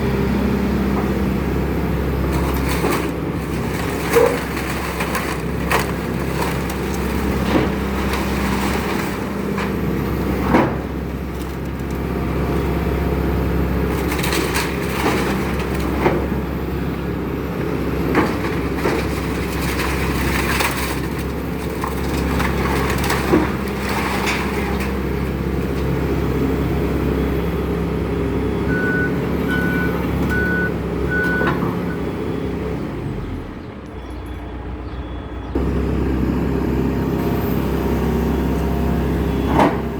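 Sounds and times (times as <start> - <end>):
excavator engine running: 0.0 - 39.9
short even beeps: 28.7 - 31.5.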